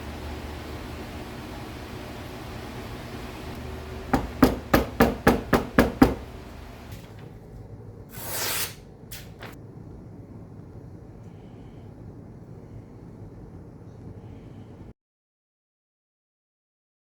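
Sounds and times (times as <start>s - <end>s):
steady low hum: 0.0s - 8.2s, 8.8s - 14.9s
hammer striking metal: 4.1s - 6.3s
short hiss: 8.1s - 9.6s.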